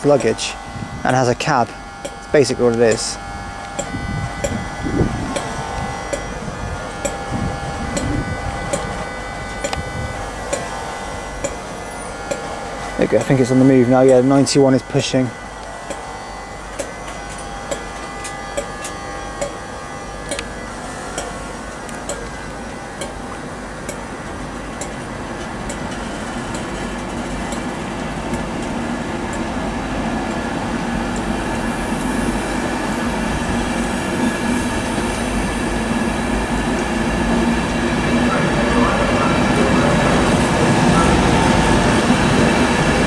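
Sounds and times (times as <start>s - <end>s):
train pulling away: 0.0s - 43.0s
wheels clicking over track: 16.7s - 43.0s.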